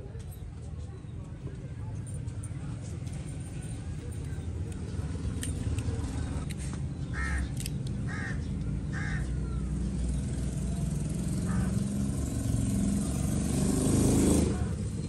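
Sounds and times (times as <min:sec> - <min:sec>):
bird giving harsh calls: 0:08.1 - 0:09.3.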